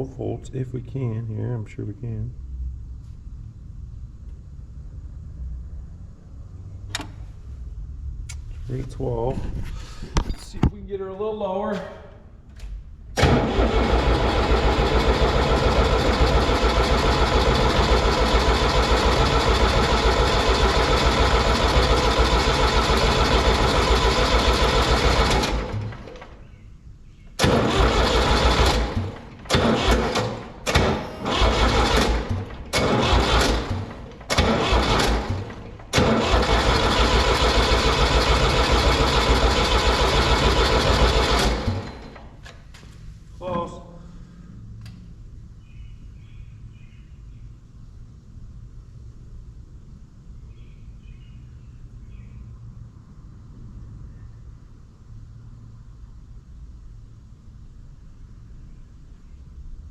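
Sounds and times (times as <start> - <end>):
engine starter cranking: 12.6 - 26.4, 27.4 - 42.6.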